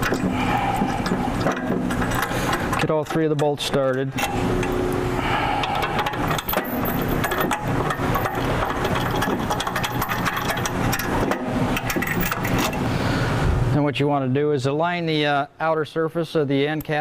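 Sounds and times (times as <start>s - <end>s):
motor running hum: 0.0s - 2.8s, 4.2s - 13.6s
metallic clicks and rattles: 0.0s - 4.9s, 5.6s - 12.9s.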